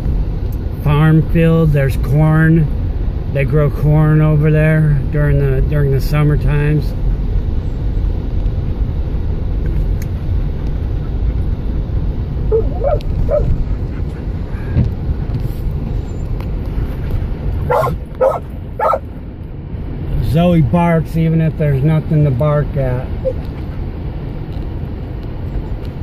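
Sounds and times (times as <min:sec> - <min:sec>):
car rumbling on road: 0:00.0 - 0:26.0
dog barking: 0:12.5 - 0:13.6, 0:17.7 - 0:19.1.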